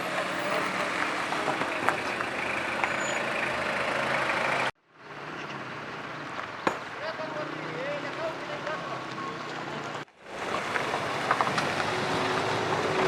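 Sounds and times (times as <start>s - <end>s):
heavy vehicle engine running: 0.0s - 4.8s.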